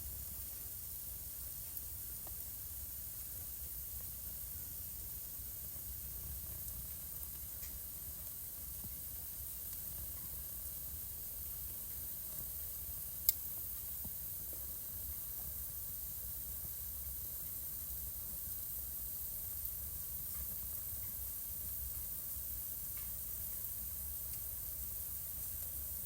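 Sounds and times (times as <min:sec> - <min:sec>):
wood fire hissing and crackling: 0:00.0 - 0:26.0
fire popping: 0:01.4 - 0:18.6.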